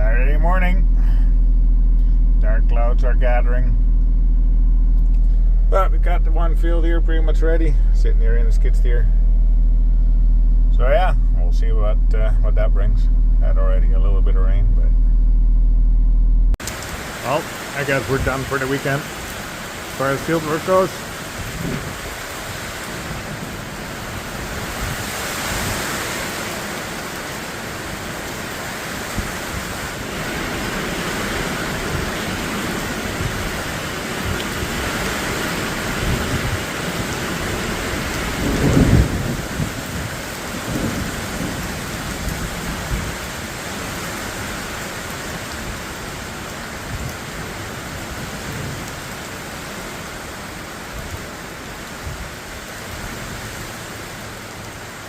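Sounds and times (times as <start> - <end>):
heavy rain pouring: 0.0 - 15.4, 16.5 - 55.0
low roll of thunder: 35.5 - 43.3.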